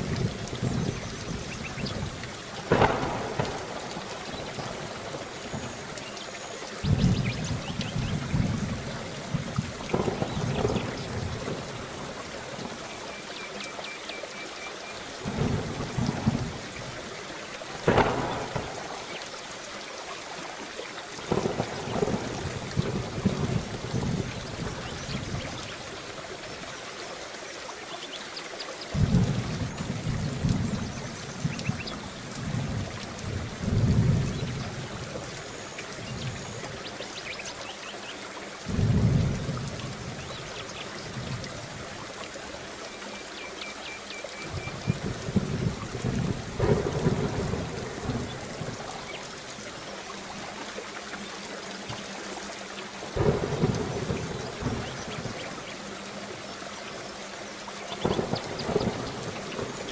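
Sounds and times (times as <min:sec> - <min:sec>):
thunder rumbling: 0:00.0 - 0:06.0, 0:06.8 - 0:12.8, 0:15.2 - 0:17.1, 0:17.7 - 0:19.2, 0:21.3 - 0:26.0, 0:28.9 - 0:35.4, 0:38.7 - 0:41.8, 0:44.5 - 0:49.5, 0:53.2 - 0:55.7, 0:58.0 - 0:59.9
steady rain hissing: 0:00.0 - 0:59.9
sharp thunder crack: 0:00.6 - 0:05.7, 0:06.8 - 0:11.7, 0:17.8 - 0:19.2, 0:29.0 - 0:31.8, 0:44.6 - 0:48.8.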